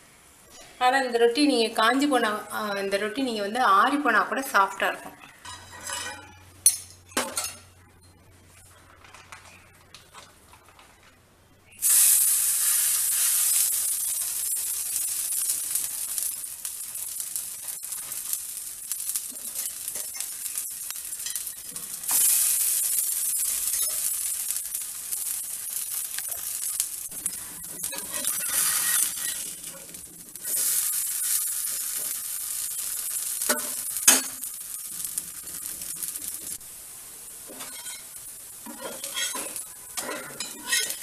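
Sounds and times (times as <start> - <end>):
patties sizzling on a griddle: 11.8 - 41.0.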